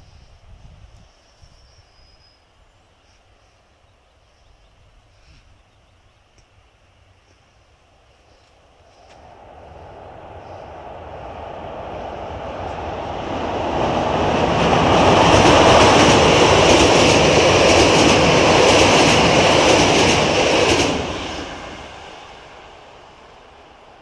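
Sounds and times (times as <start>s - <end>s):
train crossing a steel bridge: 6.6s - 24.0s.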